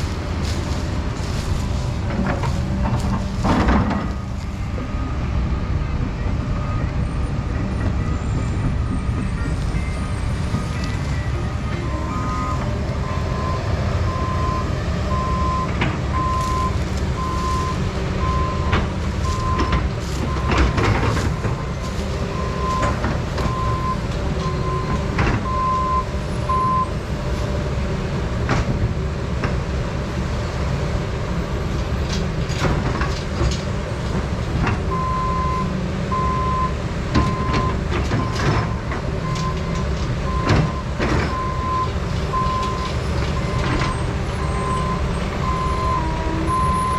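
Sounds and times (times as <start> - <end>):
excavator diesel engine running: 0.0 - 46.9
backup alarm beeping: 11.1 - 26.9.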